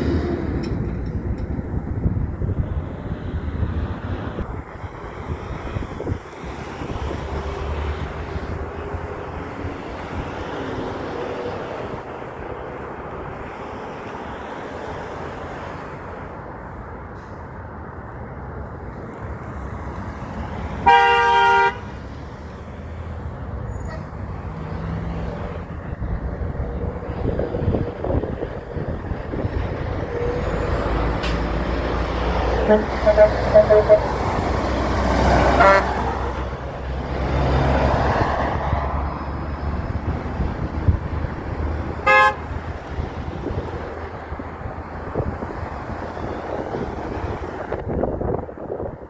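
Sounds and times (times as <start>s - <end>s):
road traffic passing: 0.0s - 49.0s
vehicle horn blast: 20.8s - 21.9s, 32.6s - 34.5s, 35.5s - 36.0s, 42.0s - 42.5s.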